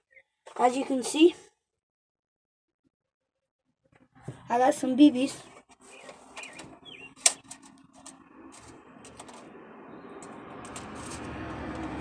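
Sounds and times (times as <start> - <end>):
steady rumble: 4.3 - 12.0
plastic clicks and rattles: 6.0 - 9.5.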